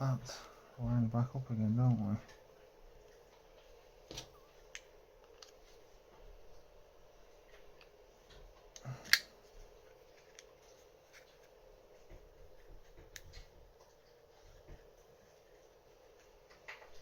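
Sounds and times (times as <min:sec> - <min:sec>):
small metal clicks of lock parts: 0:09.0 - 0:09.3.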